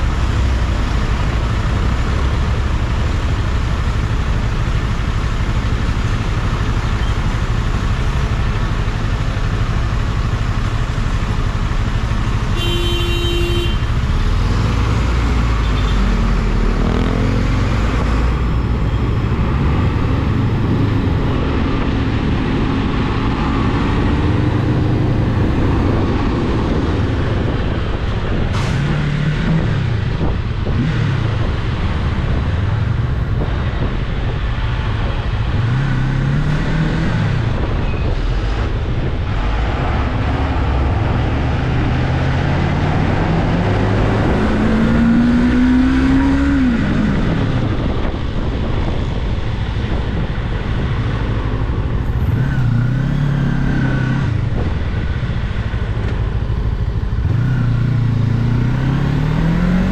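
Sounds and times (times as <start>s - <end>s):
motorcycle engine accelerating: 35.0s - 48.3s, 52.2s - 59.9s.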